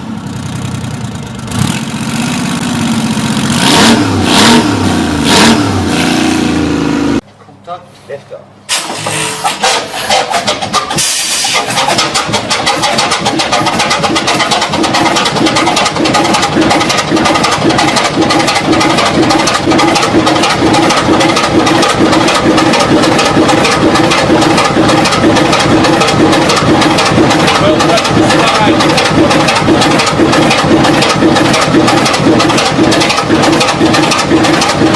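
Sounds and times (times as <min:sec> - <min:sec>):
engine running loud: 0:00.0 - 0:07.2, 0:08.7 - 0:34.9
short hiss: 0:08.7 - 0:10.2, 0:10.9 - 0:11.8.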